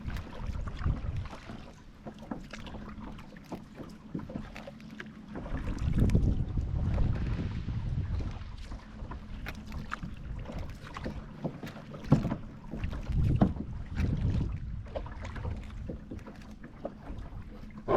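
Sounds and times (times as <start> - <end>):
wind rumble on microphone: 0.0 - 1.8, 5.4 - 11.3, 12.1 - 16.2
paddle strokes splashing: 0.0 - 17.9
knocks against boat: 9.4 - 17.9.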